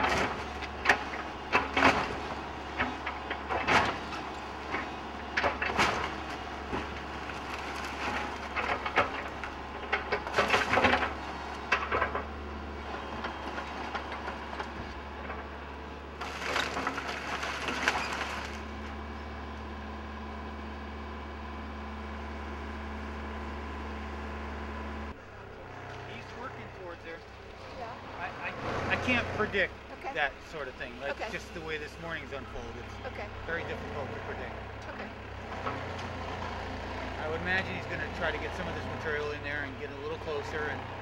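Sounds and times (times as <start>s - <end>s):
excavator engine drone: 0.0s - 41.0s
building cracking and crashing: 5.4s - 11.5s, 16.2s - 18.9s.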